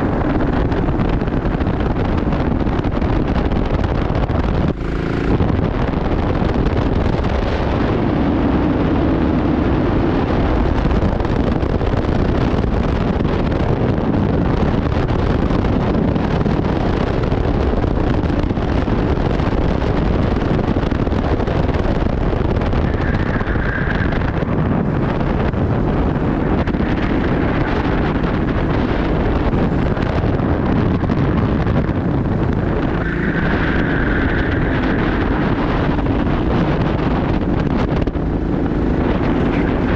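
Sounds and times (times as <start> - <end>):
go-kart engine racing: 0.0 - 39.9
wind noise on microphone: 0.0 - 39.9
high-pitched squeal: 32.9 - 35.5.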